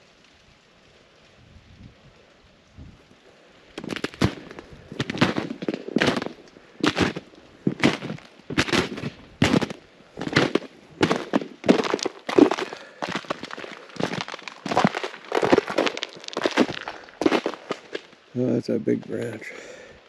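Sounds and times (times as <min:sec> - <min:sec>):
footsteps crunching through snow: 0:03.8 - 0:18.4.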